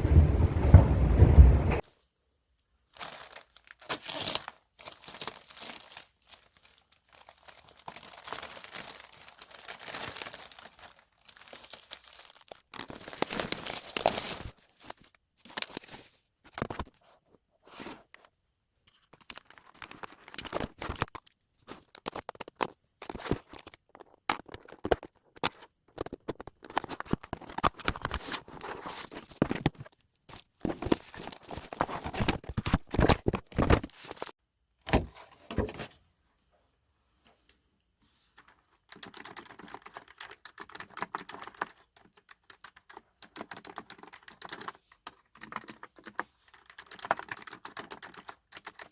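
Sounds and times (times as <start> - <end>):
typing on a keyboard: 38.4 - 48.9.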